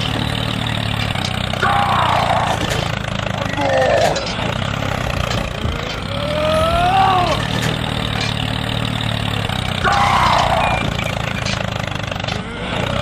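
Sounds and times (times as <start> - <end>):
person exclaiming: 1.6 - 2.6, 6.1 - 7.5.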